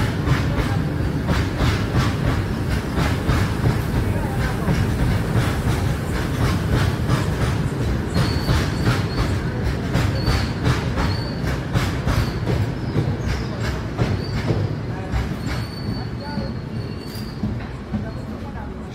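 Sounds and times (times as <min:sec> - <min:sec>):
train wagons rumbling: 0:00.0 - 0:18.9
wheel squeals: 0:08.1 - 0:18.6.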